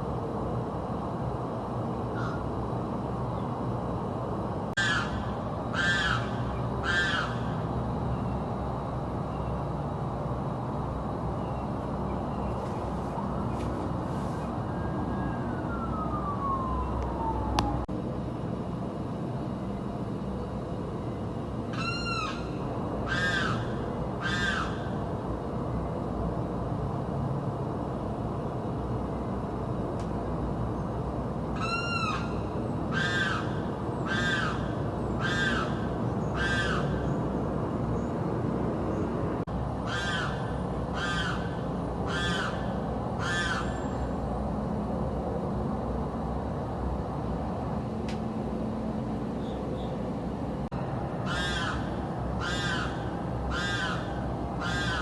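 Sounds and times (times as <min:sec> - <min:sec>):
background hum: 0:00.0 - 0:55.0
bird screaming: 0:02.2 - 0:02.4, 0:04.8 - 0:07.6, 0:21.7 - 0:25.0, 0:31.6 - 0:37.2, 0:39.8 - 0:44.0, 0:51.2 - 0:55.0.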